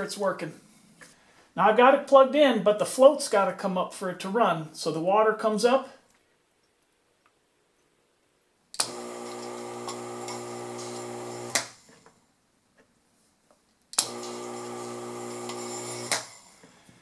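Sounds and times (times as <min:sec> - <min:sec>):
pump motor humming: 0:08.8 - 0:11.7, 0:14.0 - 0:16.2.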